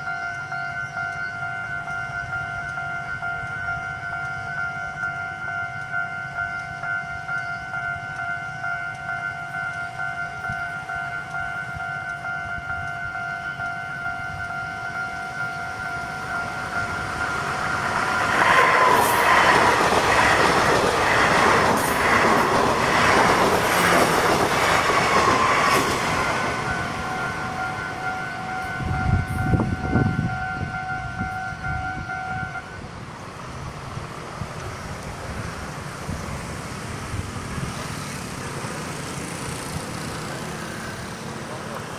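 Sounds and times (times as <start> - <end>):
crossing warning bell ringing: 0.0 - 41.9
train wheels clacking on rail joints: 8.9 - 30.1.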